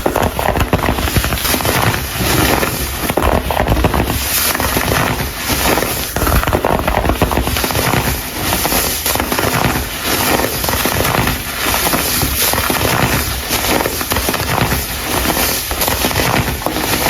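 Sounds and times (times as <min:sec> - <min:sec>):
baking soda crumbles crunching: 0:00.0 - 0:17.0.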